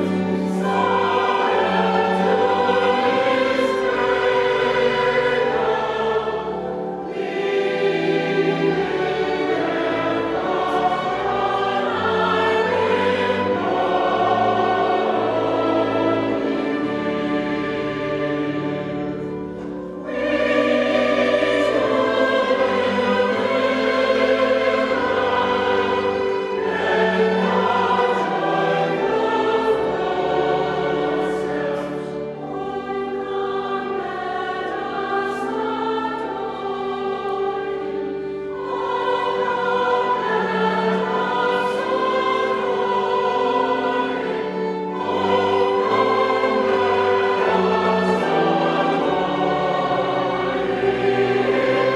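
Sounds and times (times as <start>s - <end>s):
choir singing: 0.0s - 51.9s.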